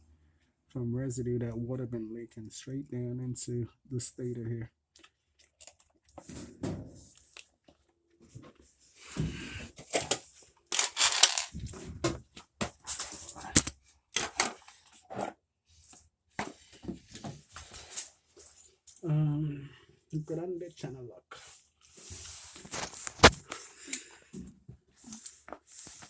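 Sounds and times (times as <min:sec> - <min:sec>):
tools clicking and rattling on parts: 0:09.8 - 0:11.8, 0:12.6 - 0:16.0.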